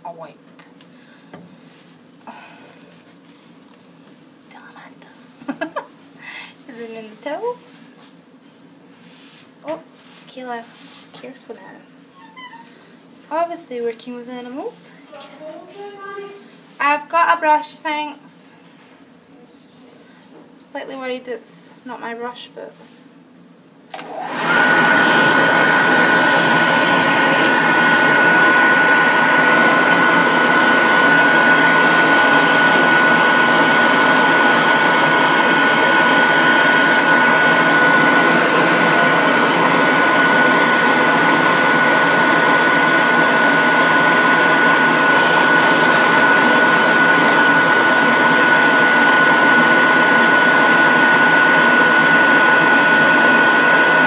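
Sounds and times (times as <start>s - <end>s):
blow dryer running: 23.9s - 54.0s.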